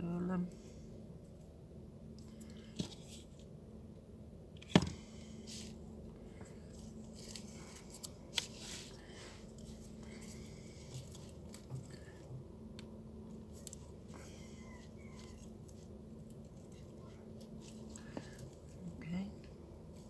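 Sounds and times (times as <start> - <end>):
faint steady hum: 0.0 - 20.0
rustling of craft materials: 4.6 - 12.6, 13.3 - 20.0.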